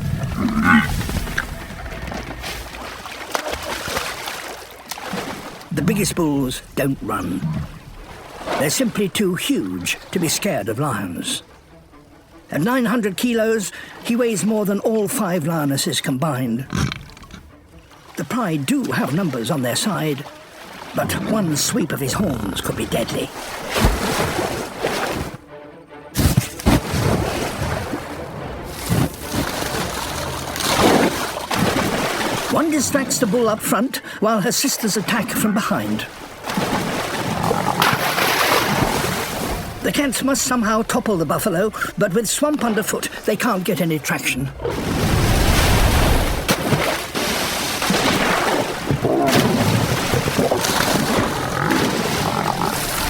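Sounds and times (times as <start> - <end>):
animal growl: 0.0 - 2.8, 16.6 - 17.5, 37.1 - 38.2, 50.3 - 53.0
water splashing and churning: 0.0 - 53.0.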